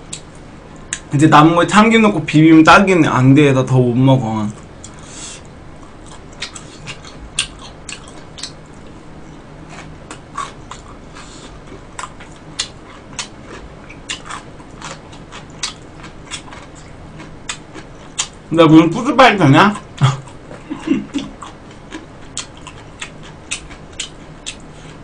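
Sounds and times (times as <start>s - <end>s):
low steady hum: 0.0s - 25.0s
wet chewing mouth clicks: 4.6s - 8.9s, 9.8s - 18.4s, 21.2s - 25.0s.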